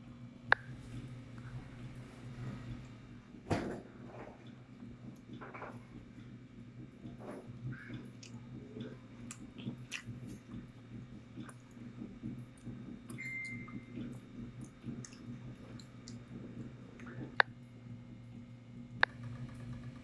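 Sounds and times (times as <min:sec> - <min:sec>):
low hum: 0:00.0 - 0:20.0
mouth clicks and smacks: 0:07.1 - 0:10.6, 0:11.4 - 0:17.5
child chewing: 0:07.1 - 0:10.7, 0:11.3 - 0:17.4.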